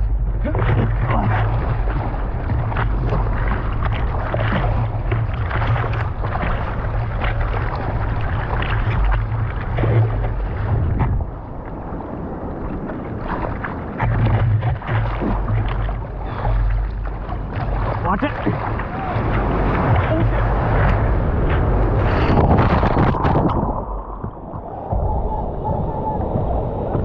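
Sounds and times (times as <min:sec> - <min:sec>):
ocean surf rushing: 0:00.0 - 0:27.0
wind buffeting microphone: 0:00.0 - 0:27.0.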